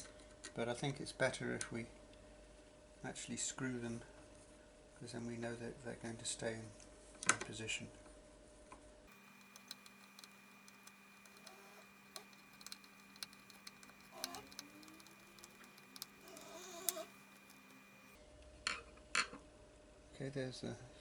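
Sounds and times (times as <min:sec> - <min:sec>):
faint electrical hum: 0:09.1 - 0:18.2.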